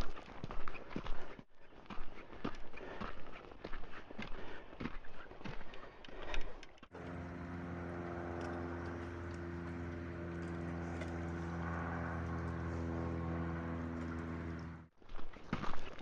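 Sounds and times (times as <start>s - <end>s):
engine running steadily: 6.9s - 14.9s.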